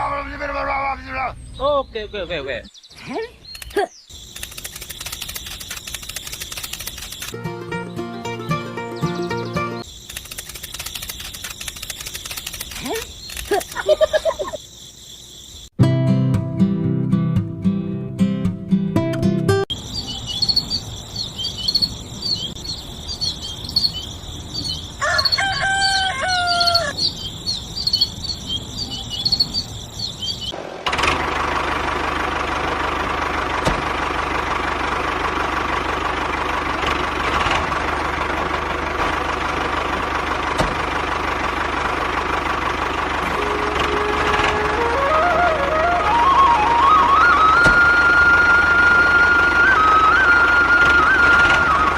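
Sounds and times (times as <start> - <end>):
small birds chirping: 0.1 - 7.4, 8.0 - 15.8, 19.7 - 30.6
rooster crowing: 24.6 - 27.1.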